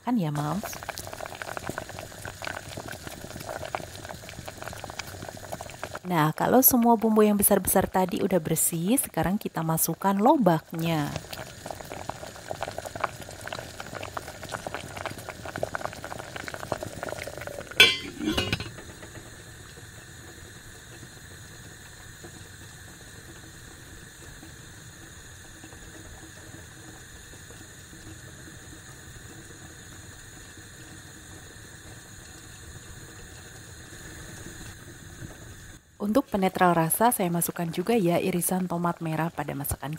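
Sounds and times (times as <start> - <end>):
broth boiling in a frying pan: 0.0 - 39.9
clatter and splash in pan: 17.7 - 19.2.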